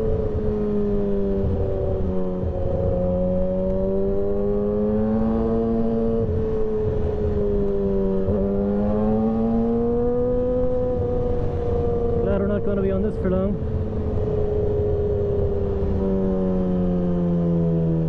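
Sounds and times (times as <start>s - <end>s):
motorcycle engine at speed: 0.0s - 18.0s.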